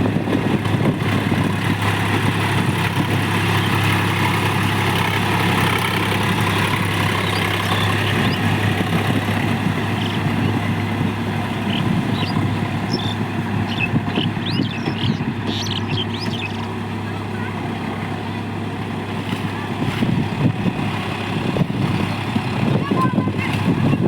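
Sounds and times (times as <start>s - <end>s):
tractor engine running: 0.0s - 24.0s
birds chirping: 2.8s - 18.4s.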